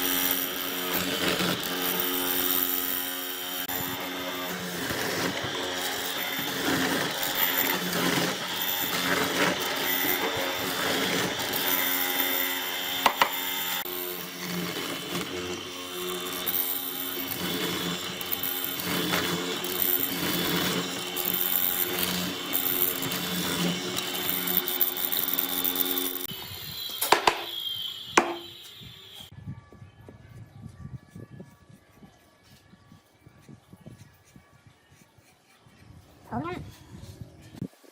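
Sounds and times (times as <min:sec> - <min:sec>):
electric power tool running: 0:00.0 - 0:29.3
sharp knocks: 0:27.0 - 0:27.5, 0:28.2 - 0:28.4.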